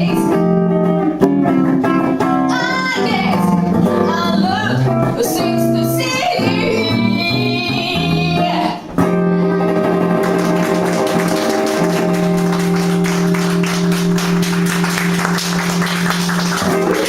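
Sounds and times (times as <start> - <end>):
rapid guitar strumming: 0.0 - 17.0
live band holding chord: 9.1 - 17.0.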